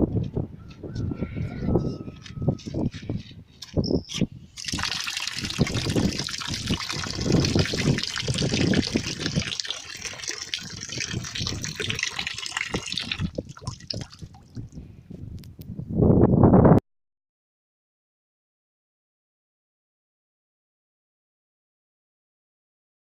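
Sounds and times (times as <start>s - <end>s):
water pouring into container: 4.6s - 14.8s.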